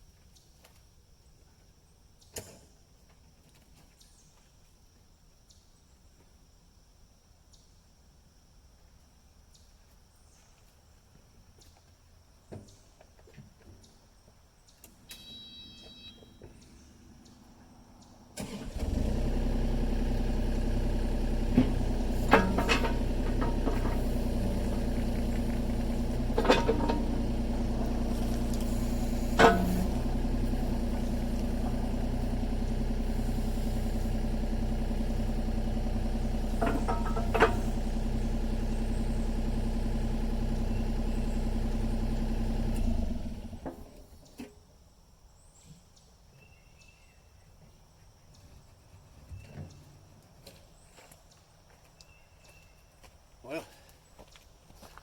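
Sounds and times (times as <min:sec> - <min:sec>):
short high beep: 0:15.1 - 0:16.4
excavator diesel engine: 0:18.4 - 0:44.0.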